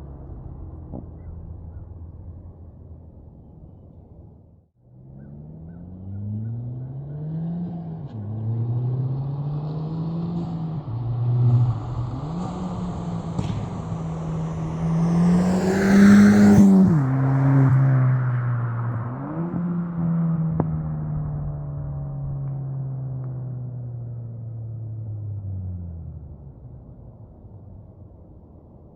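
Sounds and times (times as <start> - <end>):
car engine accelerating hard: 4.9 - 22.6.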